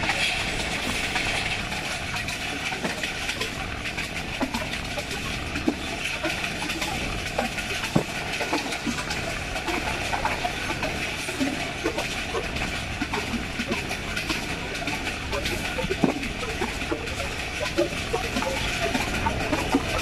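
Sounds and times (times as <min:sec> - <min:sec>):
train wheel clicks and knocks: 0:00.0 - 0:11.2
wind and rail noise: 0:00.0 - 0:20.0.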